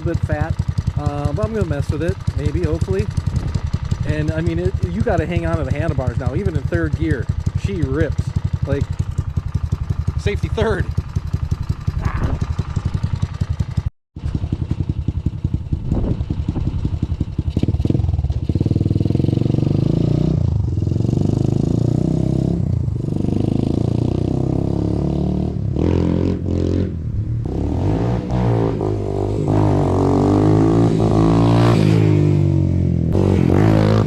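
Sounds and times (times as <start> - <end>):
engine revving hard: 17.6 - 32.5, 33.1 - 34.0.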